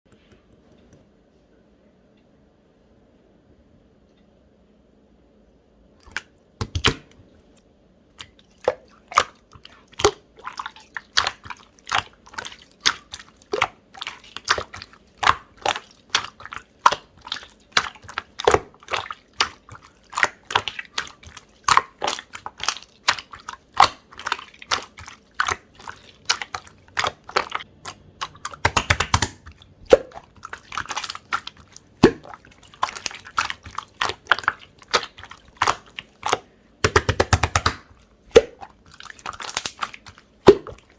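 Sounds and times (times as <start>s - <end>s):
wet clicks and pops: 6.0s - 7.2s, 26.3s - 30.2s, 30.8s - 40.8s.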